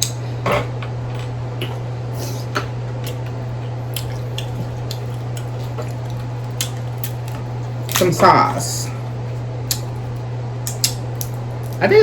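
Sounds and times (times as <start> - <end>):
steady low hum: 0.0 - 12.0
wet squishing of eating: 1.6 - 11.9
shells cracking: 3.9 - 8.1, 9.7 - 11.8.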